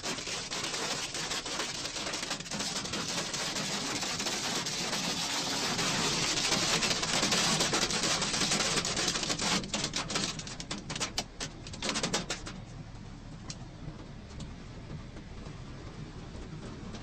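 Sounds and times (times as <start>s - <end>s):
hail pelting a vehicle: 0.0s - 12.6s.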